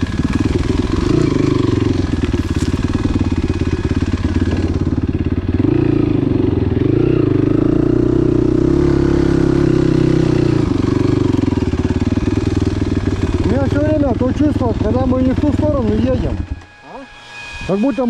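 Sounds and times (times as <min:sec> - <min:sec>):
motorcycle engine running: 0:00.0 - 0:16.5.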